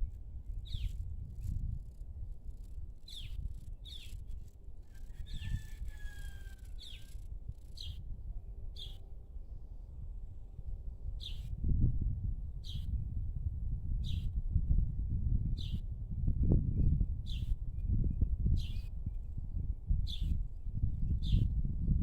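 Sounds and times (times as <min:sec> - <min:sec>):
constant low rumble: 0:00.0 - 0:22.0
bird chirping: 0:00.6 - 0:04.6, 0:06.7 - 0:08.0.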